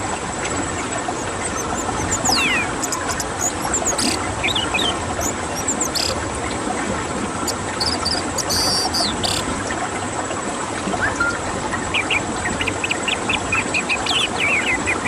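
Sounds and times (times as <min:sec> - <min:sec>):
whistled glides: 0:01.1 - 0:06.1, 0:10.9 - 0:15.0
bird chirps: 0:01.1 - 0:06.2, 0:07.5 - 0:09.4, 0:11.0 - 0:15.0.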